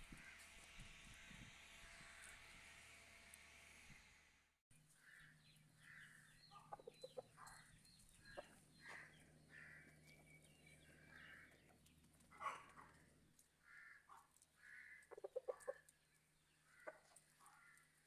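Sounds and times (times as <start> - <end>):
chickens clucking: 6.5 - 10.3, 15.0 - 15.9, 16.8 - 17.5.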